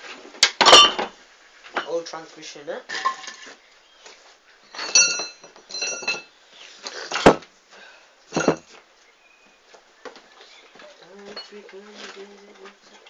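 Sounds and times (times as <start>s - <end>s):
ringing metallic clinks: 4.7s - 6.3s.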